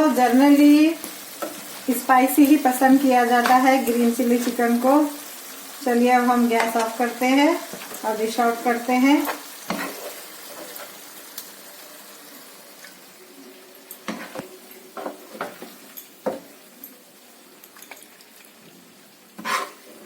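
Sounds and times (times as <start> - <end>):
chicken sizzling in a pan: 0.0 - 20.0
spoon scraping and knocking on pan: 9.3 - 11.0, 14.0 - 16.5, 19.4 - 20.0.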